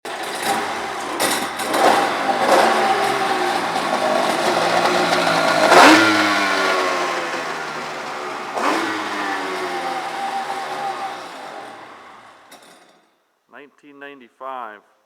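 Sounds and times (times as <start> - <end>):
jet ski engine revving: 0.0 - 12.6.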